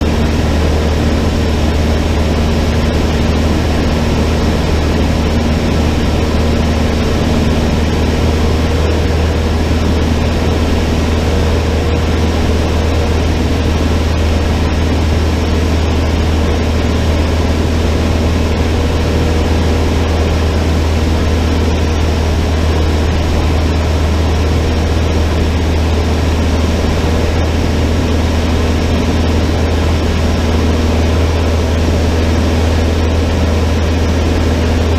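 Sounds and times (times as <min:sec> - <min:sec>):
aircraft engine drone: 0:00.0 - 0:34.9.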